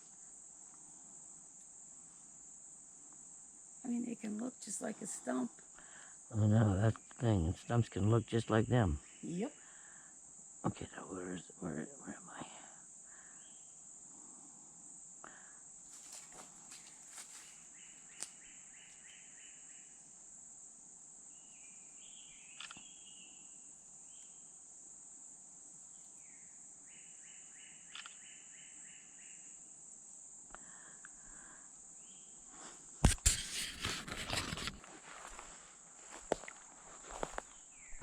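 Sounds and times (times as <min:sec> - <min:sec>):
high-pitched insect drone: 0:03.6 - 0:20.6
songbirds singing trills: 0:06.6 - 0:09.6, 0:16.8 - 0:20.1, 0:21.3 - 0:24.5, 0:25.9 - 0:29.6
footsteps through undergrowth: 0:15.9 - 0:19.1, 0:33.0 - 0:38.0.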